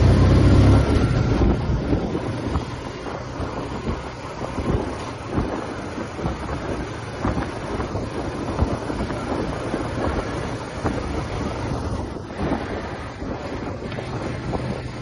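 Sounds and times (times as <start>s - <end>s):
motorcycle engine running: 0.0s - 15.0s
wind noise on microphone: 0.0s - 15.0s.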